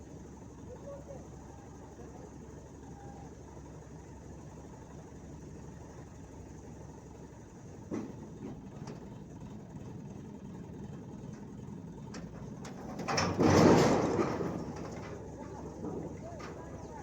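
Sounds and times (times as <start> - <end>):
road traffic rumble: 8.0 - 17.0.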